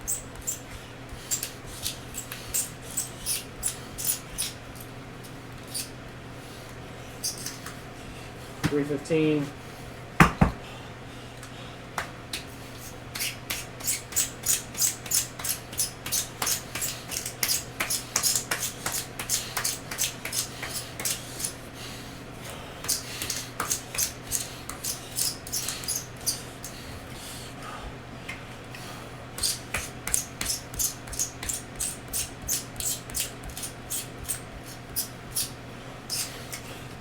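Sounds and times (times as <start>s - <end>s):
pencil sharpener scraping: 0.0s - 4.6s, 24.0s - 26.8s.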